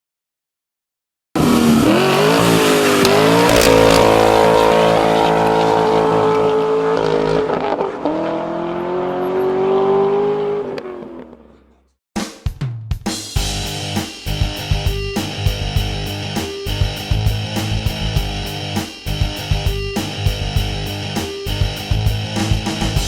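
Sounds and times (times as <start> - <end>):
car engine accelerating: 1.4 - 11.7.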